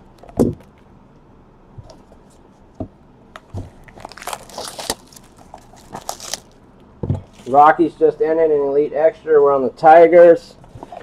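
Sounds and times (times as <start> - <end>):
packaging crinkling: 3.7 - 6.6.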